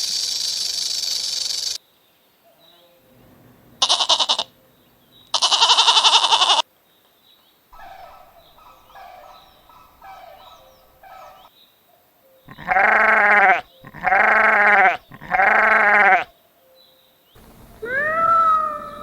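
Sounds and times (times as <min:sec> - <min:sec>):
small high chirps: 0:00.0 - 0:01.8
animal bleating: 0:03.8 - 0:04.6, 0:05.3 - 0:06.6, 0:12.5 - 0:16.3.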